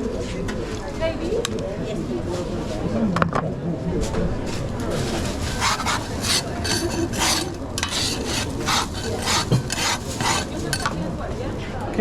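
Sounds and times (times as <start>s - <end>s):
metal utensils scraping pans: 5.0s - 11.0s.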